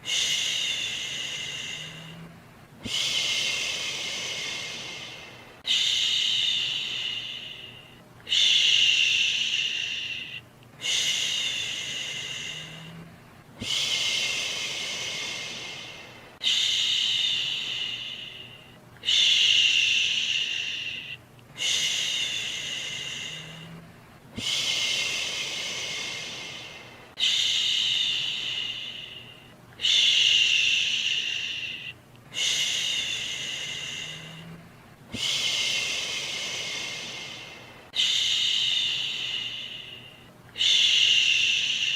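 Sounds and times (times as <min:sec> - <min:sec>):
faint white-noise hiss: 0:00.0 - 0:41.9
person shushing: 0:00.0 - 0:41.9.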